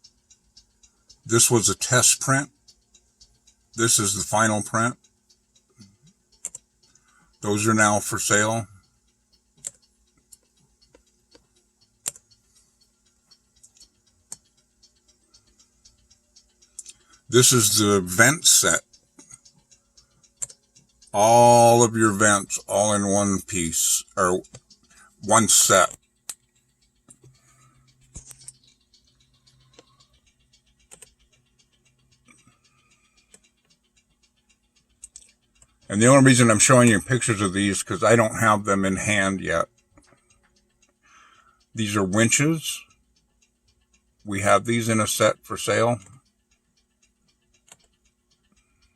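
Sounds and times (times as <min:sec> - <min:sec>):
faint clicks: 0:00.0 - 0:48.9
faint steady hum: 0:00.0 - 0:48.9
computer mouse clicks: 0:06.4 - 0:06.7, 0:09.6 - 0:12.4, 0:30.8 - 0:31.2, 0:47.6 - 0:48.8.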